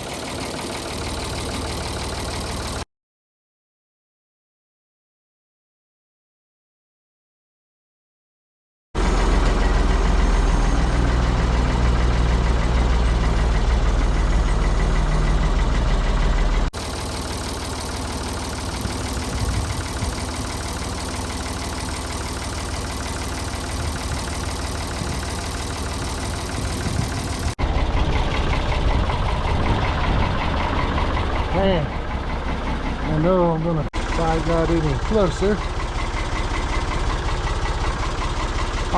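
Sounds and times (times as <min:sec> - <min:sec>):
backhoe engine running: 0:00.0 - 0:02.8, 0:09.0 - 0:38.9.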